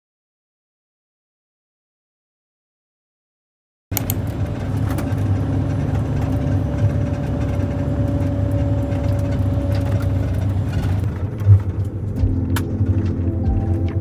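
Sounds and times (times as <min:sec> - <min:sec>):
motor vehicle rumbling: 0:03.9 - 0:14.0.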